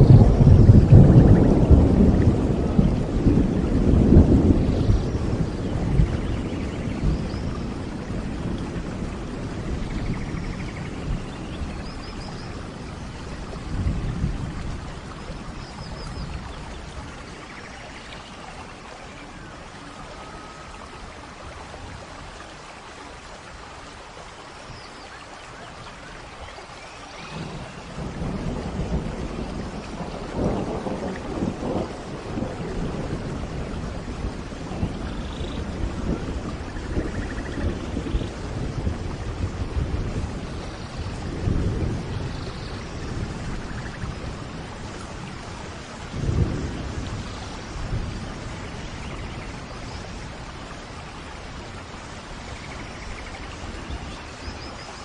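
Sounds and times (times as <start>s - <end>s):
rolling thunder: 0.0s - 17.5s, 27.2s - 54.8s
steady rain: 0.0s - 55.0s.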